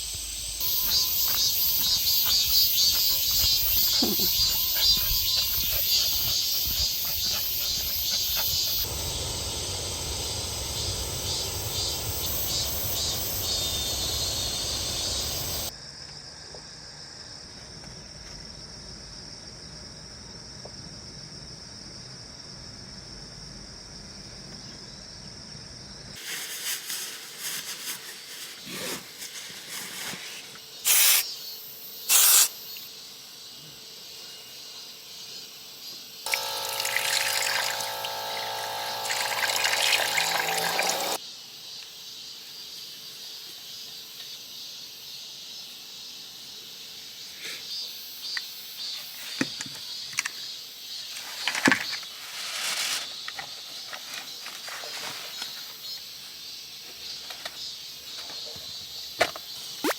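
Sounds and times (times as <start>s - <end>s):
small motor humming: 0.0s - 15.7s, 36.3s - 41.2s
crickets chirping: 0.0s - 59.9s
water pouring and splashing: 36.3s - 41.2s.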